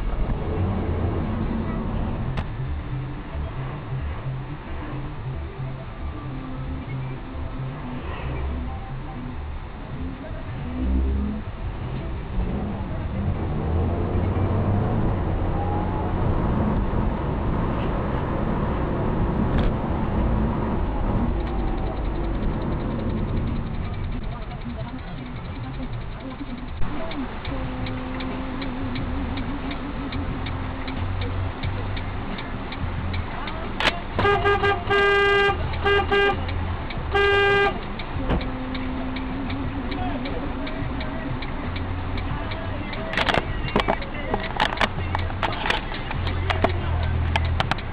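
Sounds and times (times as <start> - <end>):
car engine and road rumble: 0.0 - 47.9
sharp click: 30.5 - 34.4, 41.4 - 47.9
car horn honking: 34.2 - 36.5, 37.1 - 37.8.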